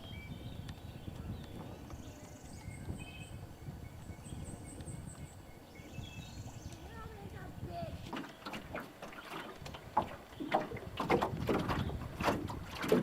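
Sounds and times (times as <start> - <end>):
small birds chirping: 0.0 - 9.5
wind rumble: 0.0 - 13.0.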